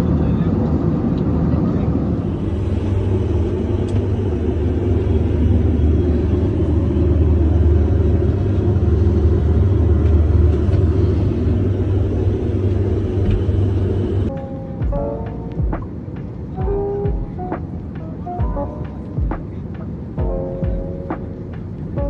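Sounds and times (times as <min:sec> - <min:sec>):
airliner cabin engine rumble: 0:00.0 - 0:22.0
air rushing past fuselage: 0:02.0 - 0:14.3.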